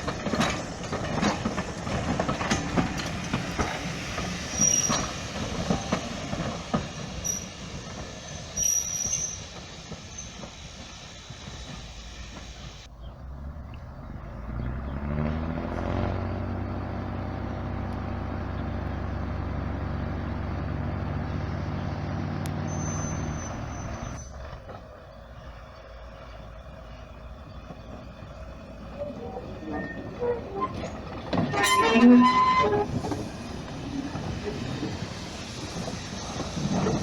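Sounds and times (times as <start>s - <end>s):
diesel train engine revving: 0.0s - 37.0s
train wheels rolling on rails: 0.0s - 37.0s
high-pitched wheel squeals: 4.4s - 5.3s, 7.2s - 7.7s, 8.3s - 10.4s, 22.4s - 24.4s, 28.9s - 33.3s.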